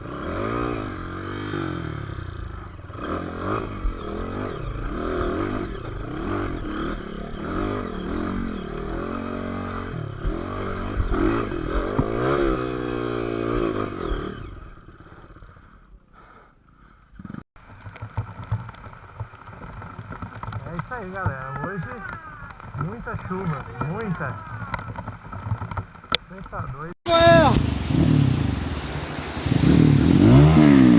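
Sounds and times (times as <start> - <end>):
motorcycle engine revving: 0.0 - 16.1, 16.8 - 26.2, 26.8 - 30.9.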